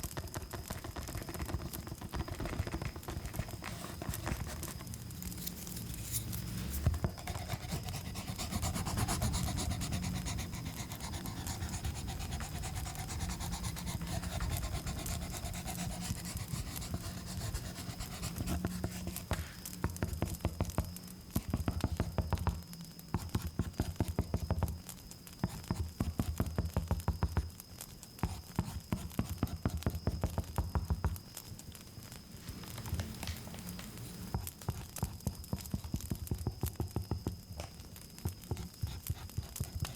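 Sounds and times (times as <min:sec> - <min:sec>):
crickets chirring: 0:00.0 - 0:39.9
close rubbing and scratching: 0:00.3 - 0:19.2.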